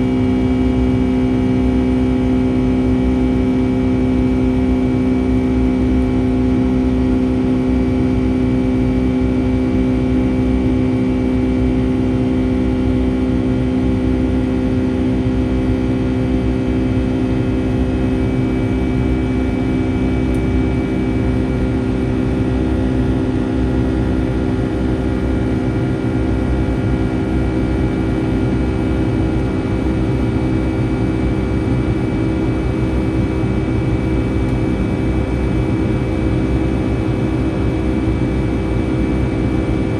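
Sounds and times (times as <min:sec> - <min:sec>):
jet engines hum in cabin: 0:00.0 - 0:39.9.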